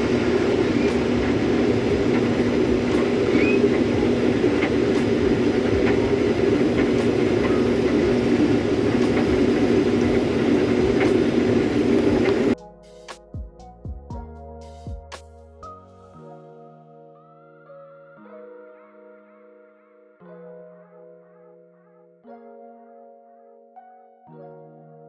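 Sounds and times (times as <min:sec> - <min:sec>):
music: 0:00.0 - 0:25.0.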